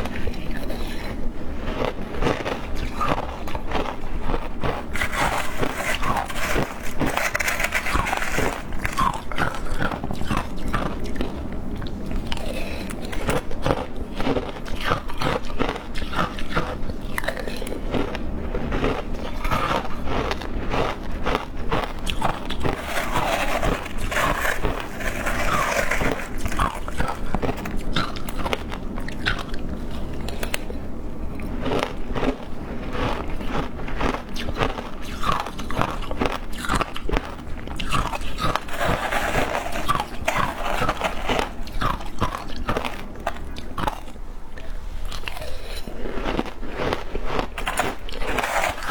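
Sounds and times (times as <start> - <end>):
chewing shaved ice: 0.0 - 48.9.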